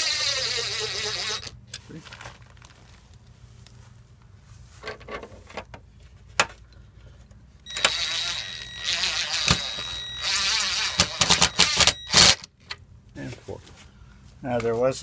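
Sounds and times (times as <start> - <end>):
impact driver whining and hammering: 0.0 - 1.5, 7.7 - 12.5.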